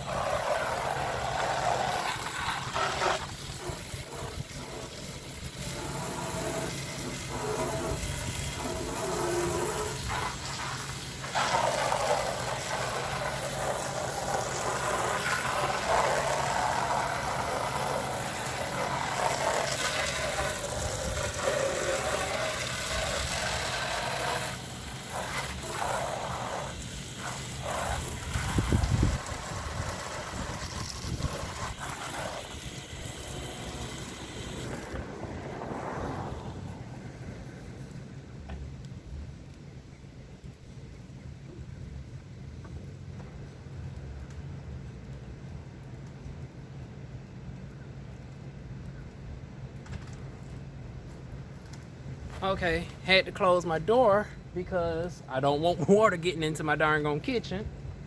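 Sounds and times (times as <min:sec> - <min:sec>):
hose spray splattering on siding: 0:00.0 - 0:38.5
air conditioner humming: 0:48.1 - 0:58.0.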